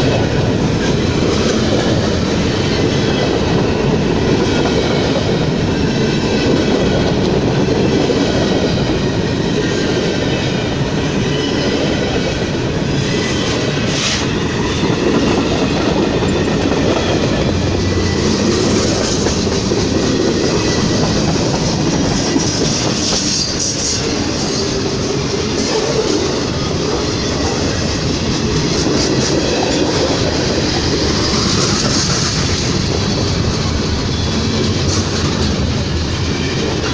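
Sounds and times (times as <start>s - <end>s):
train wheels clacking on rails: 0.0s - 36.9s.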